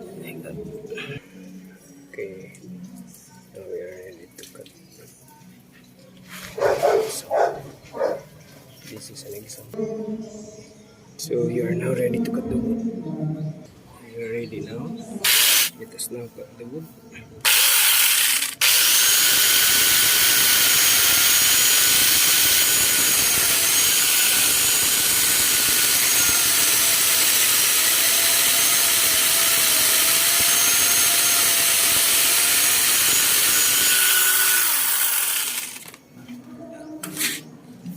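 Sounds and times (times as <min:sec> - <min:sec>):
angle grinder whine: 0:14.5 - 0:15.8, 0:17.4 - 0:36.0
chainsaw cutting wood: 0:15.2 - 0:15.7, 0:17.4 - 0:36.0.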